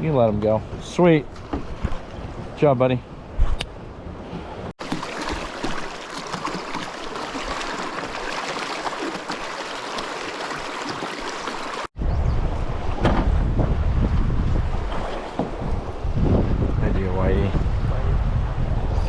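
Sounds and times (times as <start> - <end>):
rushing river: 4.8 - 11.9
wind buffeting microphone: 12.0 - 19.0.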